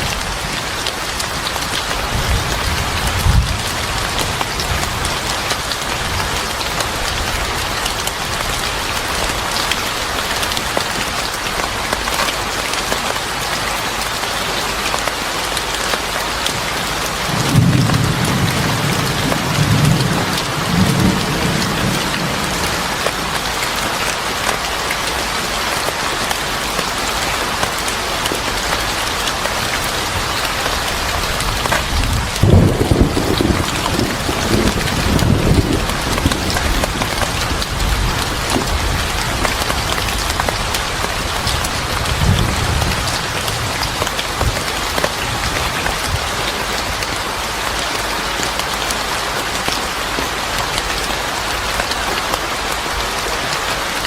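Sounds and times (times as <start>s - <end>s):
heavy rain falling: 0.0s - 54.0s
thunder rumbling: 17.3s - 23.4s, 31.0s - 44.6s.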